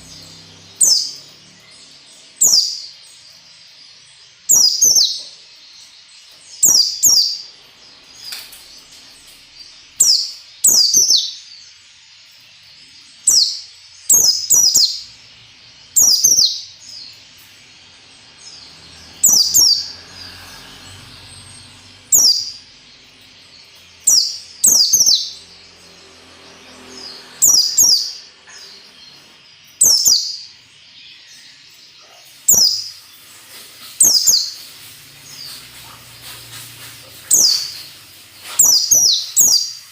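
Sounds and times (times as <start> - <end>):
bird singing high-pitched phrases: 15.9 - 23.2.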